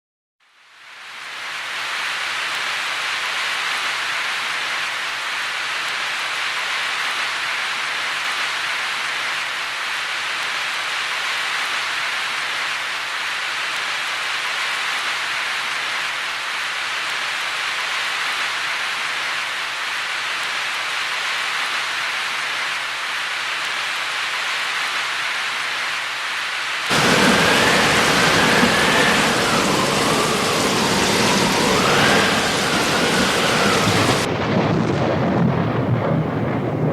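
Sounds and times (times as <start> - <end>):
heavy rain: 0.5 - 36.9
thunder rumbling: 26.9 - 36.9.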